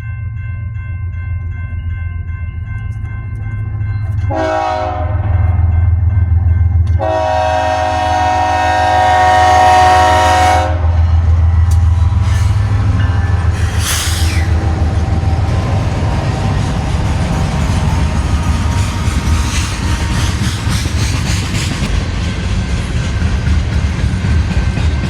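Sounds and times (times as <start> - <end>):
low rumble of locomotive engine: 0.0 - 25.0
train wheels on rails: 1.4 - 25.0
train air horn blast: 4.3 - 5.4, 7.0 - 11.0, 18.4 - 21.2.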